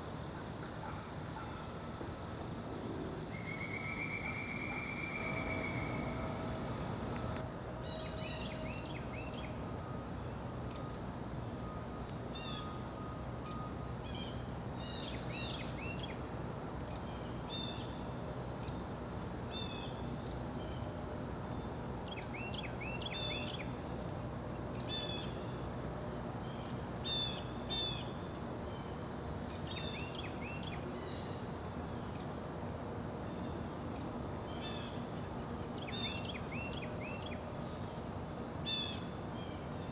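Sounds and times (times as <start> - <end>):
steady background hum: 0.0 - 39.9
small birds chirping: 4.4 - 7.4.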